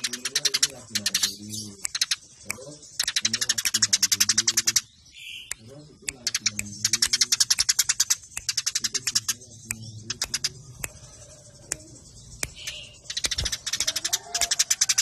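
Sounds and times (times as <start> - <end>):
sparrows chirping: 0.0 - 15.0.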